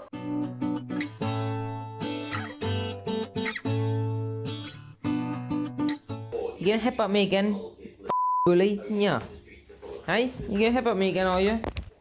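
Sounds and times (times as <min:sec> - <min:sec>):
strummed acoustic guitar chords: 0:00.1 - 0:06.4.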